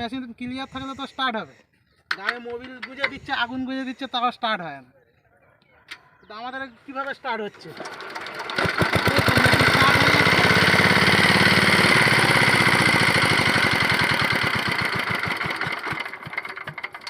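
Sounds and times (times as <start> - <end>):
diesel pump engine knocking: 7.9 - 17.0.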